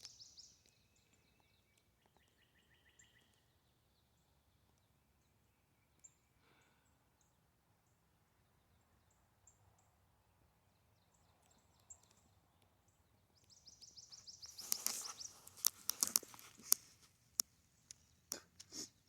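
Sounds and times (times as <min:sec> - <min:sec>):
songbird trilling: 0:00.0 - 0:00.7, 0:13.5 - 0:16.2
sharp clicks and crackles: 0:14.4 - 0:18.8.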